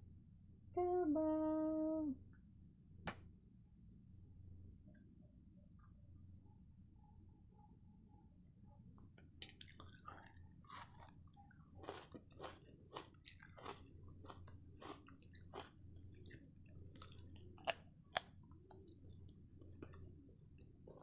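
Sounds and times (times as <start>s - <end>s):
person chewing crispy chicken: 9.4s - 20.1s.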